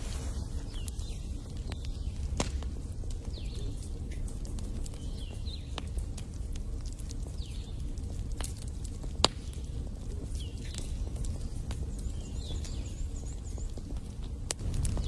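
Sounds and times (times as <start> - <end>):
fire popping: 0.0 - 15.0
wood fire crackling: 0.0 - 15.0
low rumble: 14.6 - 15.0.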